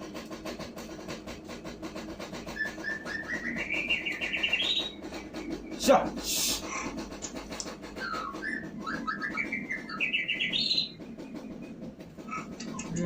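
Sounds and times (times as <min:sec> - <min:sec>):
songbird singing: 0:02.5 - 0:07.0, 0:07.6 - 0:13.0.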